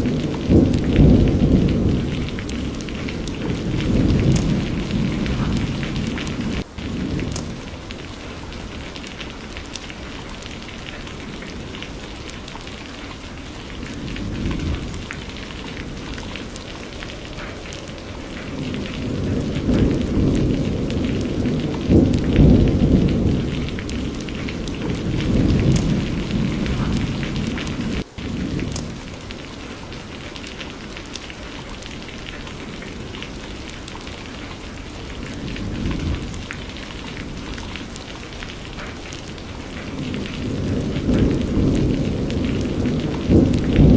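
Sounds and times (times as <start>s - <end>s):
steady rain falling: 0.0s - 43.9s
thunder rumbling: 0.0s - 43.9s.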